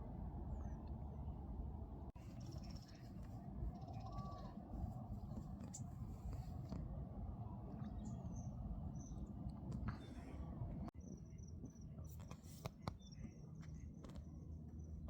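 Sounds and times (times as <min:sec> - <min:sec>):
wind rumble on microphone: 0:00.0 - 0:15.0
small birds chirping: 0:02.1 - 0:06.7, 0:07.7 - 0:15.0.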